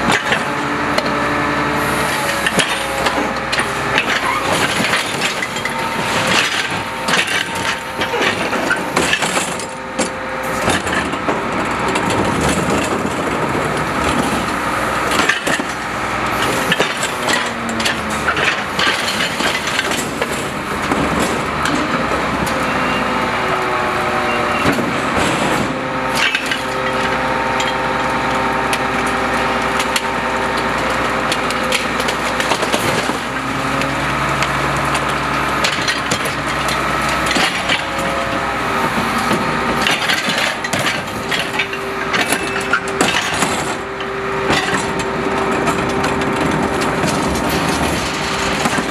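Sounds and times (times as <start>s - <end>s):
compactor crushing refuse: 0.0s - 48.9s
cracking and splintering: 24.8s - 38.5s, 44.5s - 48.9s.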